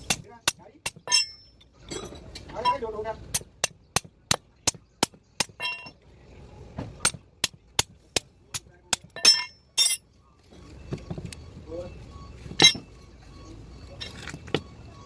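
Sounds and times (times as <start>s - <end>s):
hammer striking metal: 0.0s - 2.0s, 7.0s - 10.0s.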